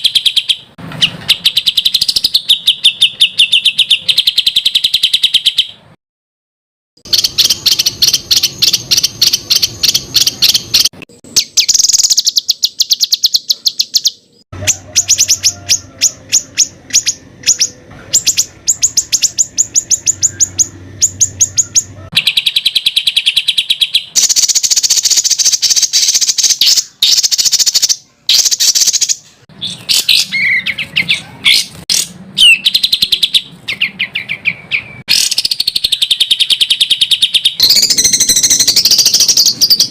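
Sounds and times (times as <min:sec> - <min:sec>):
songbird rapid high notes: 0:07.0 - 0:39.9.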